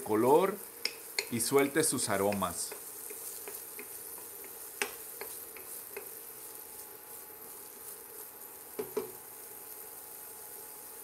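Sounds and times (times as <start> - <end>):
onion sizzling in oil: 0.0 - 11.0
wooden spoon knocking pan: 0.8 - 1.4, 8.8 - 9.2.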